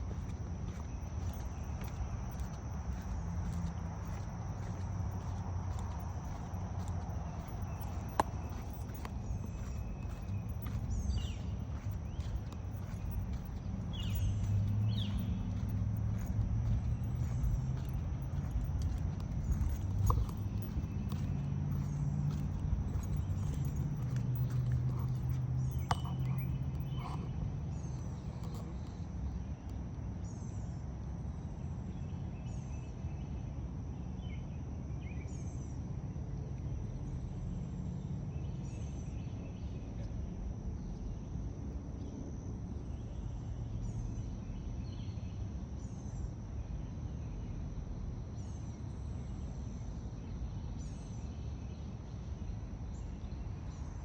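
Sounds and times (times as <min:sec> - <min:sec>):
high insect trill: 0:00.0 - 0:29.4.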